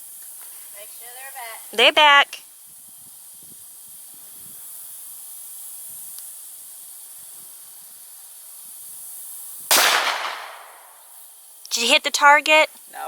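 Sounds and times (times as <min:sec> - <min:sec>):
steady high hiss: 0:00.0 - 0:13.0
gunshot: 0:09.7 - 0:10.9.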